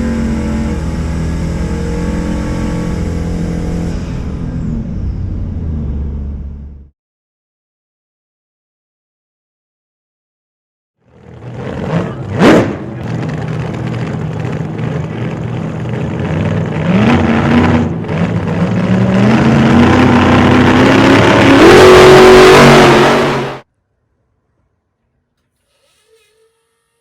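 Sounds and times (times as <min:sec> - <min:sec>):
truck engine accelerating hard: 0:00.0 - 0:06.9, 0:11.0 - 0:23.7.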